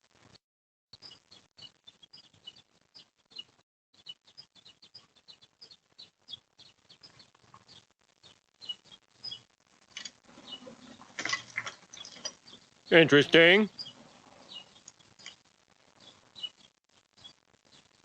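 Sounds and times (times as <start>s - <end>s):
small birds chirping: 1.0s - 18.0s.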